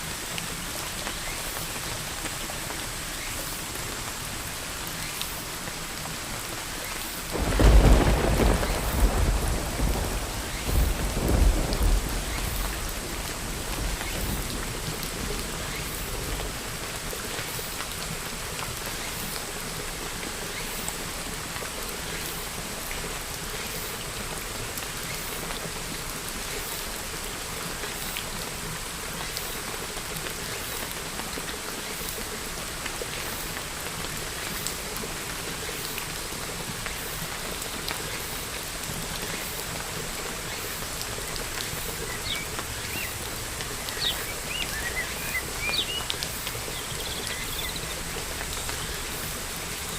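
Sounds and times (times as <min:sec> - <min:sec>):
steady rain falling: 0:00.0 - 0:49.9
low thunder rumble: 0:07.3 - 0:16.4.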